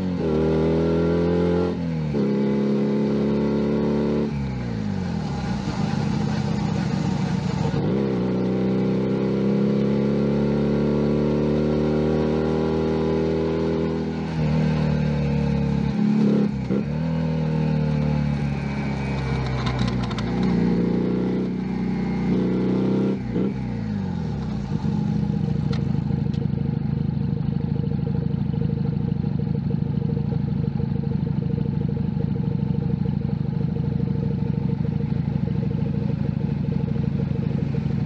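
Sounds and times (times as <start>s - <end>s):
motorcycle engine shifting gears: 0.0s - 38.0s.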